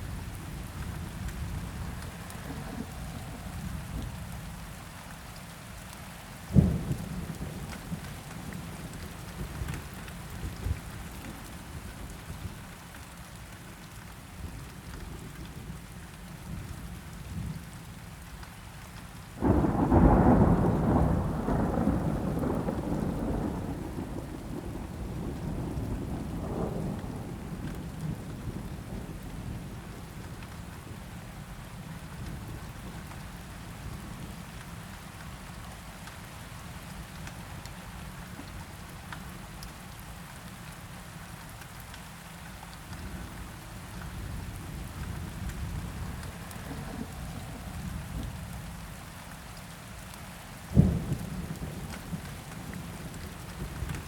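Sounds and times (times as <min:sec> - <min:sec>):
steady rain: 0:00.0 - 0:54.0
thunder: 0:19.4 - 0:28.6, 0:50.8 - 0:54.0.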